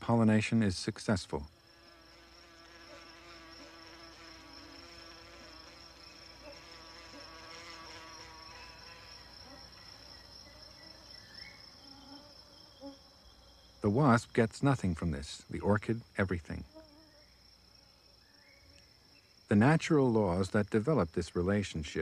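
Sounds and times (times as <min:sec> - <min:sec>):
wasp wings buzzing: 0:01.4 - 0:13.8, 0:16.6 - 0:19.4
high-pitched insect trill: 0:01.5 - 0:22.0.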